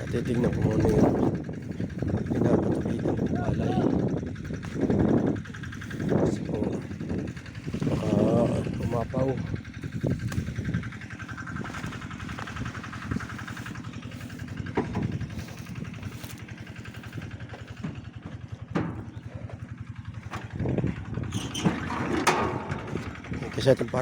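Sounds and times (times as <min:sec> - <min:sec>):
small engine running: 0:00.0 - 0:24.0
short knocks: 0:17.5 - 0:20.9.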